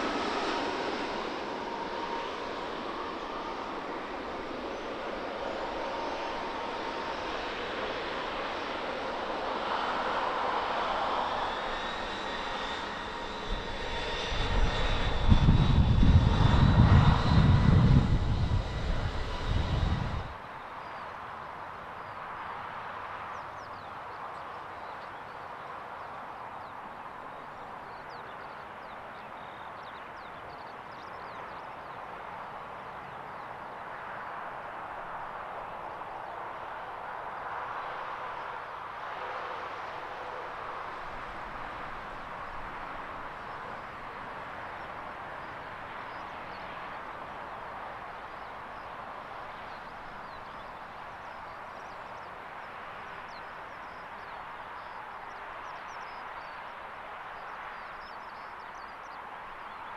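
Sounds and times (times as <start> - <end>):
steady outdoor hiss: 0.0 - 59.9.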